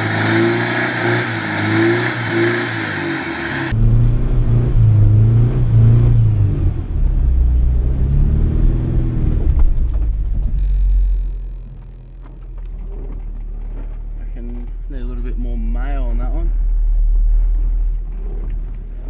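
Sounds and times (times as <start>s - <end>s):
vehicle engine revving under load: 0.0s - 12.3s.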